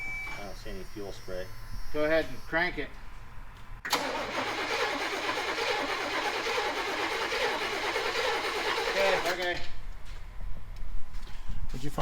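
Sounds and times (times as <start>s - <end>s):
engine cranking with starter: 3.9s - 9.6s.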